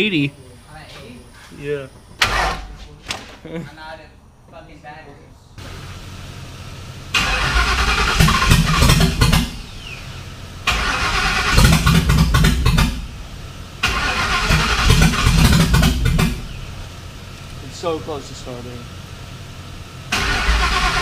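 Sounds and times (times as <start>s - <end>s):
car engine cranking not starting: 2.2s - 2.8s, 5.6s - 19.0s, 20.0s - 21.0s.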